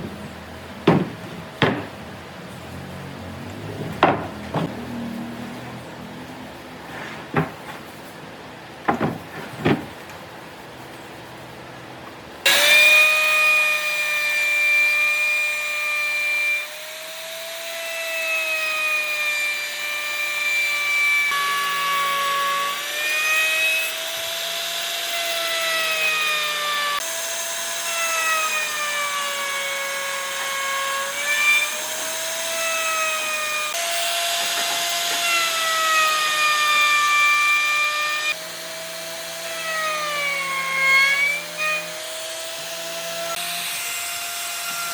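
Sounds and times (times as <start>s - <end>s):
knocks: 0.8s - 2.1s, 3.6s - 4.8s, 7.3s - 7.8s, 8.8s - 10.0s
power tool cutting wood: 12.4s - 44.9s.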